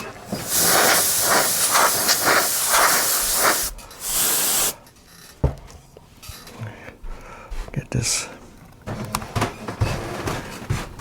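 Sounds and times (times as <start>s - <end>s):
compressed air spraying: 0.0s - 4.8s.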